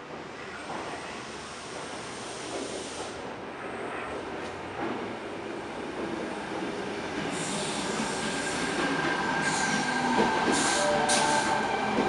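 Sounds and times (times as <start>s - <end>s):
train hiss bursts: 1.1s - 3.3s, 7.2s - 11.7s
train wheel squeal: 7.3s - 12.0s.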